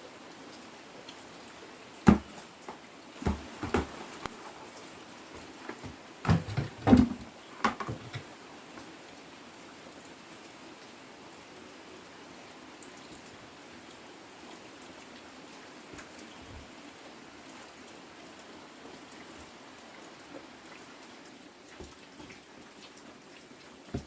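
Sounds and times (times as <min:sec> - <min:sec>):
rain patter: 0:00.0 - 0:24.0
sharp knocks and thumps: 0:02.1 - 0:04.6, 0:05.4 - 0:08.3.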